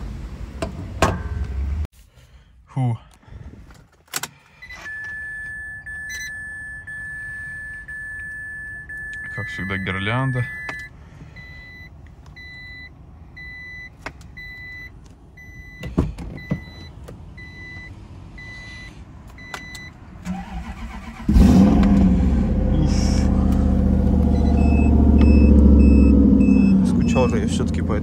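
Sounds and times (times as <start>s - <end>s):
car engine cranking and idling: 0.0s - 1.9s, 3.6s - 28.0s
car warning chime beeping: 4.6s - 21.2s, 23.8s - 27.8s.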